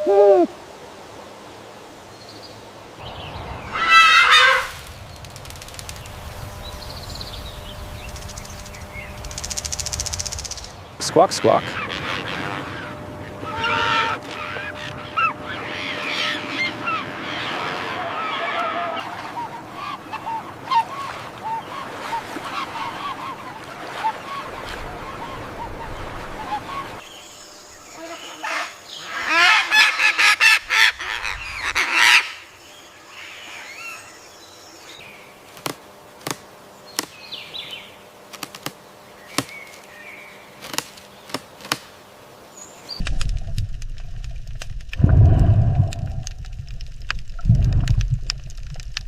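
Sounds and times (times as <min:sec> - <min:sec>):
bird honking calls: 0:03.6 - 0:04.8, 0:08.3 - 0:27.0, 0:27.9 - 0:32.5.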